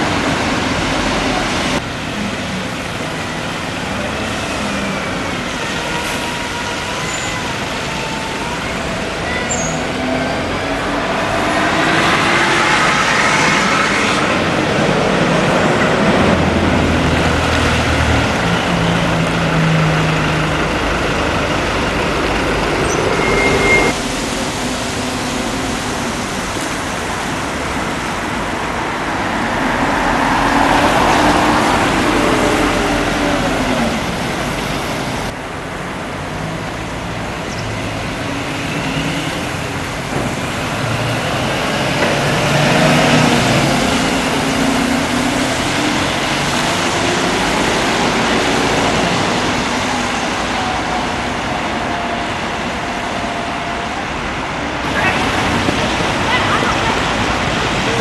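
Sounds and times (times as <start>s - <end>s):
diesel engines humming low: 12.8s - 58.0s.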